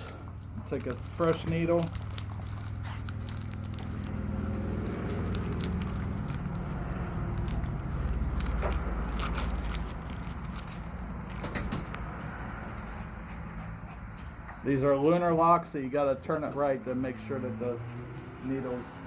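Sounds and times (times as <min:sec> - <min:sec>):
plastic packaging crackling: 0:00.0 - 0:12.0.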